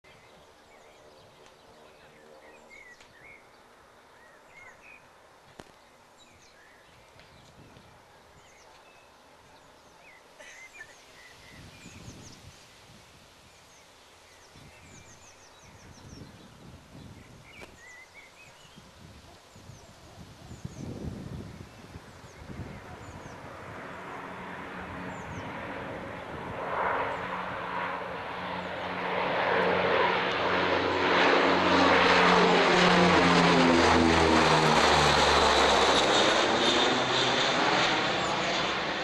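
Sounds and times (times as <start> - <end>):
faint open-air background noise: 0.0 - 39.0
small birds chirping and trilling: 0.1 - 12.7, 13.4 - 27.4.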